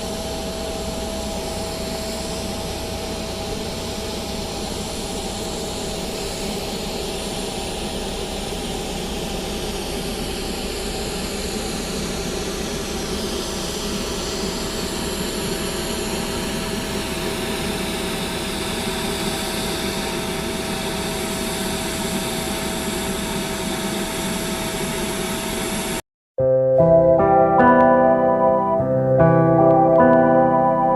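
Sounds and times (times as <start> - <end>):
music: 26.4 - 30.9.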